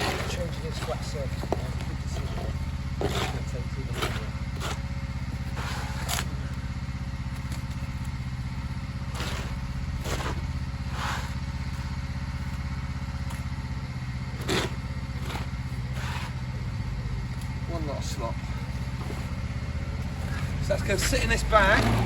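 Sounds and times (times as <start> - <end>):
shovel scraping paving: 0.0 - 6.5, 8.9 - 12.6, 14.2 - 16.6, 18.2 - 22.0
petrol engine running: 0.0 - 22.0.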